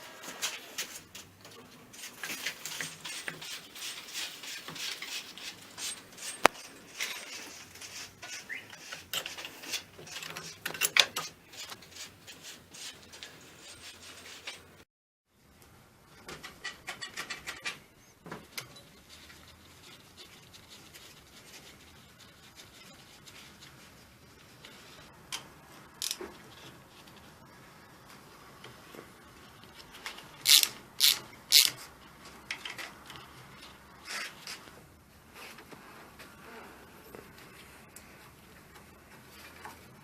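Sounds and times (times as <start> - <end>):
hands scraping metal parts: 0.2 - 14.8, 29.6 - 34.6.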